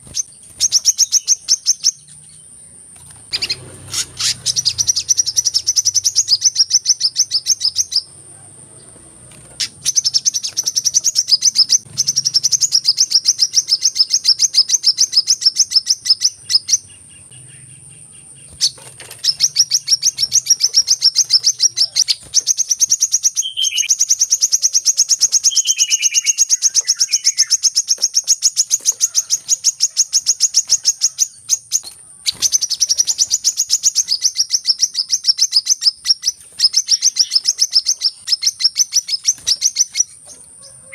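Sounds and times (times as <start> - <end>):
high-pitched bird trill: 0.0 - 2.5, 3.3 - 8.2, 9.6 - 40.9
lower falling chirps: 0.0 - 29.7.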